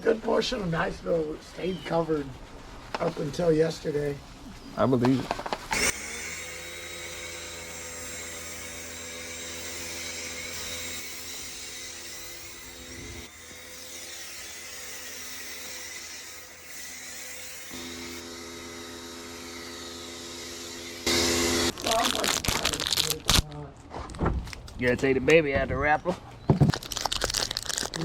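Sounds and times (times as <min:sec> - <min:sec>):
small motor humming: 0:05.7 - 0:21.8.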